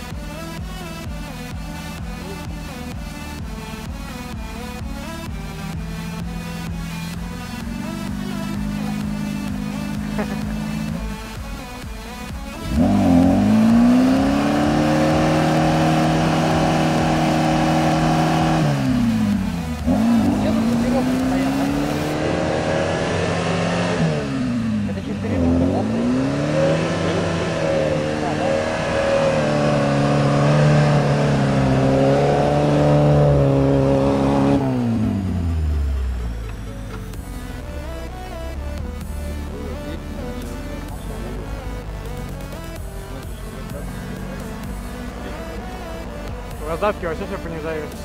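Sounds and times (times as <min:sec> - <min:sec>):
off-road vehicle engine revving: 0:00.0 - 0:48.0.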